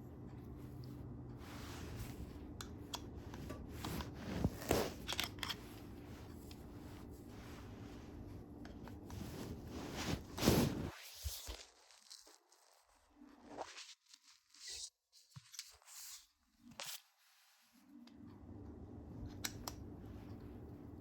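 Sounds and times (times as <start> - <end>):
steady low hum: 0.0 - 10.9, 18.0 - 21.0.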